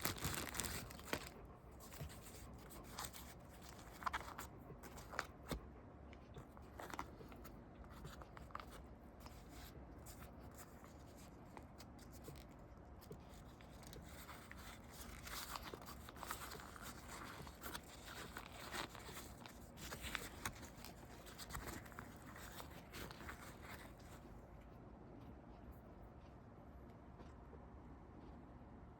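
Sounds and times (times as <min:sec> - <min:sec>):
packaging clicks: 0:00.0 - 0:02.1
packaging rustling: 0:00.0 - 0:05.6, 0:06.5 - 0:24.2.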